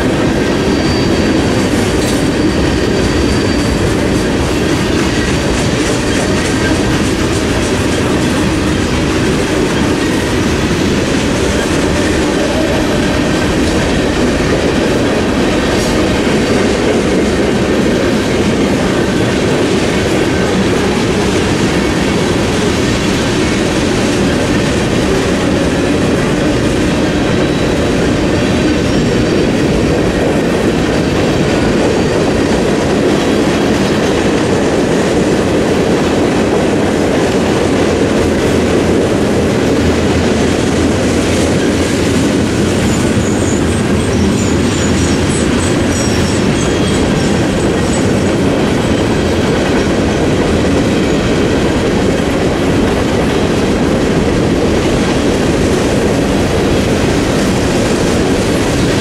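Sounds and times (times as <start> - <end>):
high wheel squeal: 0.0 - 5.4, 41.5 - 48.2
steel wheels rumbling on rail: 0.0 - 59.0.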